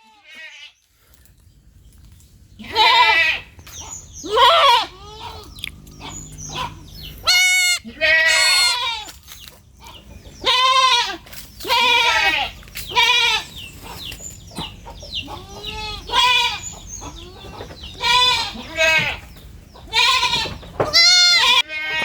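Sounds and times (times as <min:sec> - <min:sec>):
baby goats bleating: 0:00.0 - 0:00.8, 0:02.6 - 0:09.2, 0:10.4 - 0:13.7, 0:15.2 - 0:22.0.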